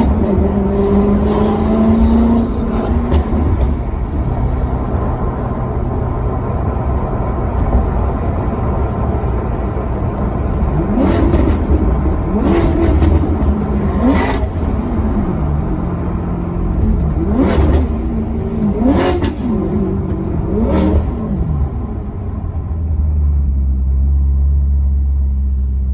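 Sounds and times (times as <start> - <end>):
engine revving: 0.0 - 8.6, 10.1 - 22.6
car engine rumbling: 0.0 - 25.9.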